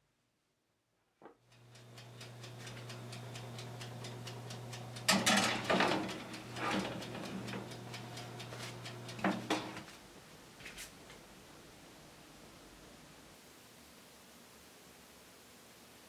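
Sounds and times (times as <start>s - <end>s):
fast even ticking: 1.5s - 9.8s
oven humming: 1.5s - 10.1s
baking tray clattering on rack: 5.0s - 9.9s.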